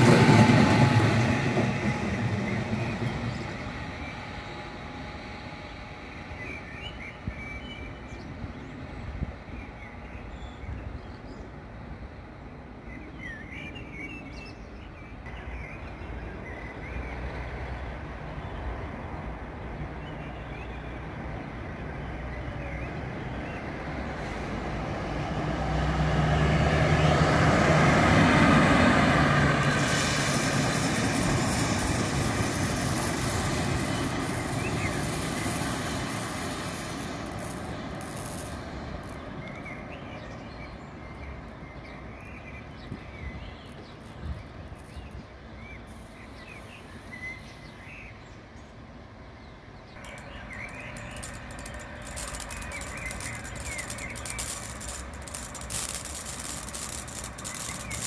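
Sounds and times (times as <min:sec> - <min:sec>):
electric locomotive passing: 0:00.0 - 0:58.0
birds chirping: 0:29.6 - 0:58.0.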